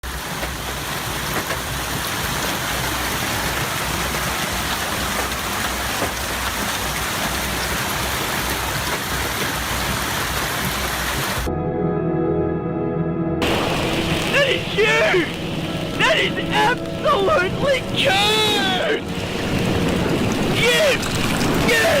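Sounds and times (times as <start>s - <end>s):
heavy rain pouring: 0.0s - 11.5s, 13.4s - 22.0s
low rumble: 11.5s - 22.0s.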